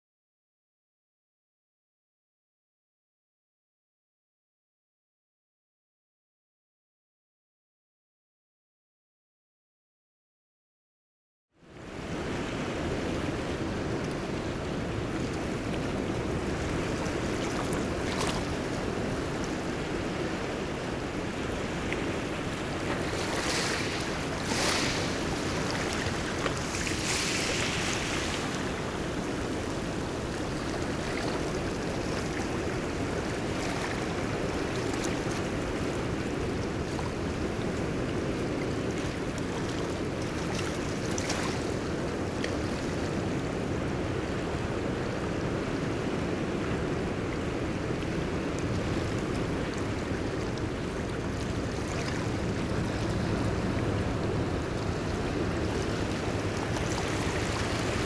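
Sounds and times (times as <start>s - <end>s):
ocean waves washing: 11.8s - 58.0s
wind on microphone: 11.8s - 58.0s.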